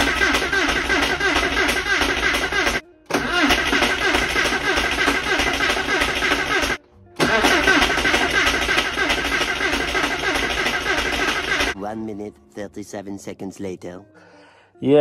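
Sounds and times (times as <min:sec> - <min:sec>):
engine cranking on starter: 0:00.0 - 0:11.8.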